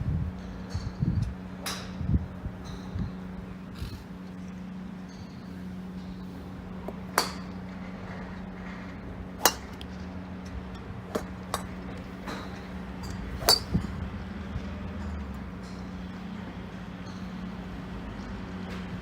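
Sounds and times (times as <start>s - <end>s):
steady low hum: 0.0s - 19.0s
golf clubs striking balls: 5.1s - 14.0s.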